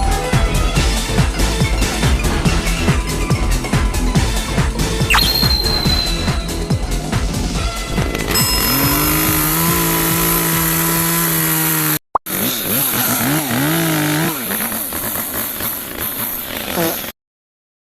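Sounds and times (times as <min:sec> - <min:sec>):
electric chainsaw motor whine: 0:08.1 - 0:17.0.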